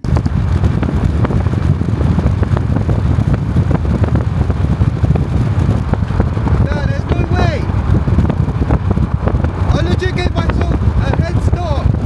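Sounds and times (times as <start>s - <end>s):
steady low rumble: 0.0s - 12.0s
wind buffeting microphone: 0.0s - 12.0s.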